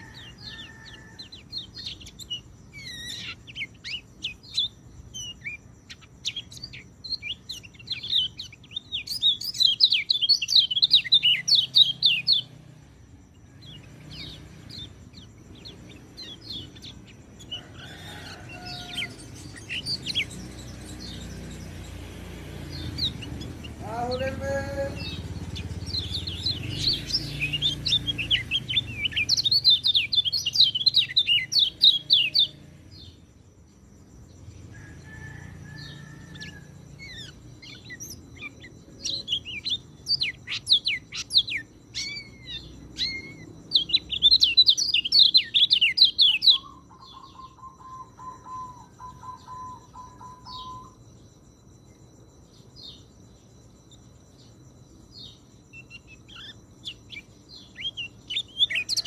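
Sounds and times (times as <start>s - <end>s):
thrush singing: 13.7s - 32.6s.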